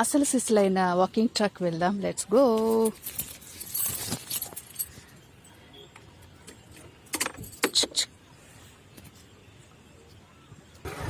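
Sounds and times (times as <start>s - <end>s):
keys jingling: 2.6s - 5.6s.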